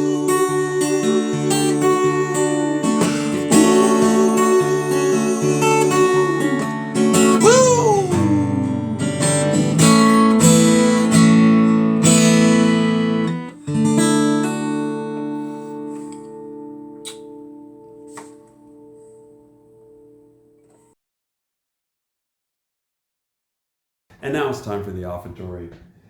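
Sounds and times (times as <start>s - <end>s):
held melody line: 0.0s - 11.5s
acoustic guitar strumming: 0.0s - 20.4s.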